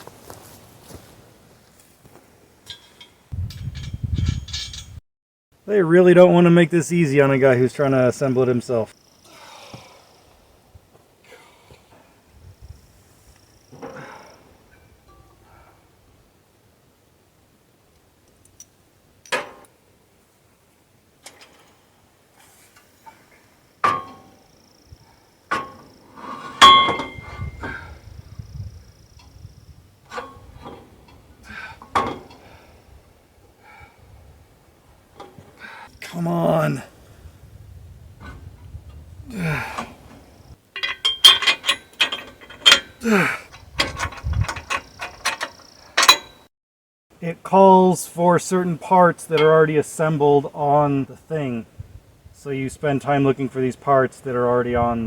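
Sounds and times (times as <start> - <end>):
metal tools clinking: 2.6 - 5.0, 40.8 - 46.4
metal knocks ringing: 26.6 - 27.5, 40.8 - 46.4
person grunting: 39.3 - 40.0, 43.0 - 43.5.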